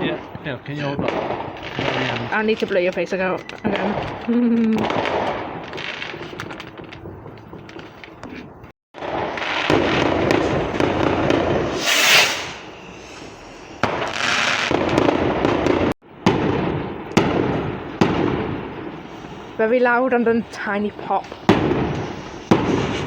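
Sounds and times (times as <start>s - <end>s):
fireworks crackling: 0.0s - 23.0s
fireworks sharp bangs: 0.0s - 23.0s
firework hissing whoosh: 9.3s - 14.8s, 21.3s - 23.0s.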